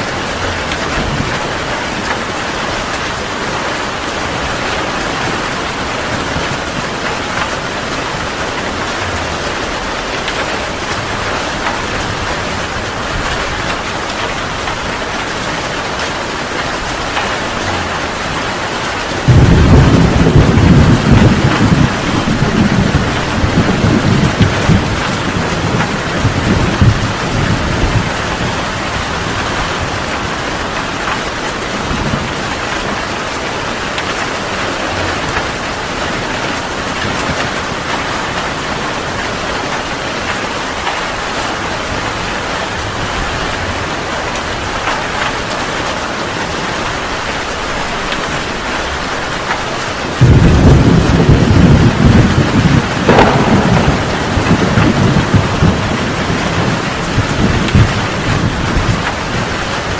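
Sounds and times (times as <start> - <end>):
thunder rumbling: 0.0 - 45.6, 46.2 - 59.9
heavy rain falling: 0.0 - 59.9.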